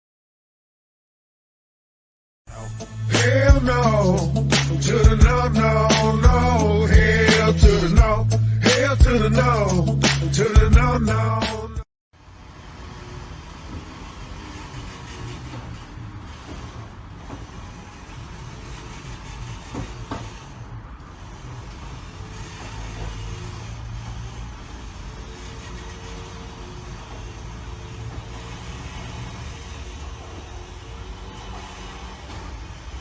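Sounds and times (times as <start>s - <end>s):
vehicle engine and road rumble: 3.0s - 33.0s.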